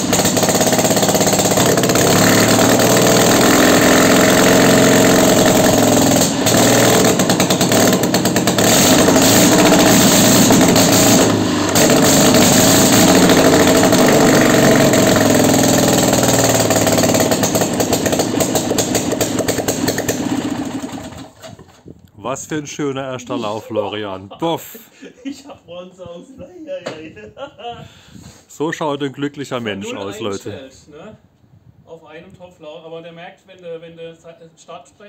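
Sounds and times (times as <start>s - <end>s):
engine revving unevenly: 0.0s - 21.1s.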